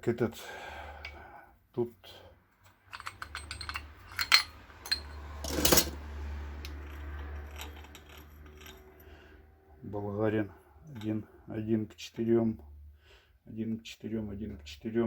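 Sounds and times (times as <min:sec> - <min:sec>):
metal parts and tools clinking: 0:02.6 - 0:09.1.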